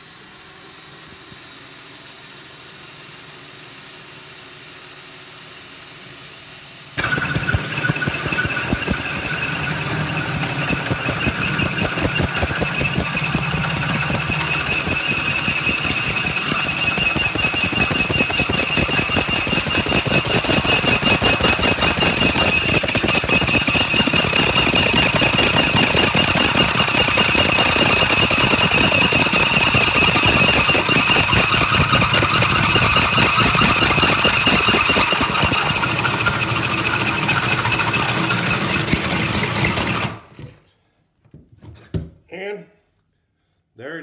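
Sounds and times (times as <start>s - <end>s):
drill high-pitched whine: 7.0s - 40.1s
hole saw grinding through stone tile: 7.0s - 40.2s.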